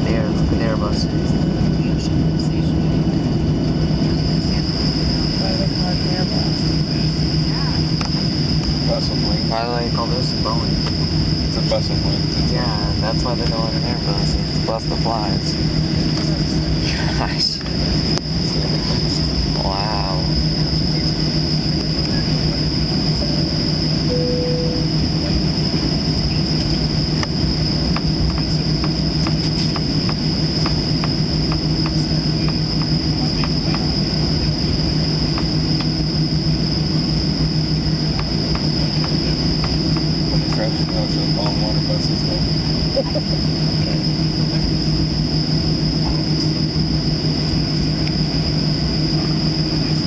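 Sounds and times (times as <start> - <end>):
aircraft cabin low rumble: 0.0 - 50.0
high steady whine: 0.0 - 50.0
hum: 0.0 - 50.0
short plain tone: 24.1 - 25.0.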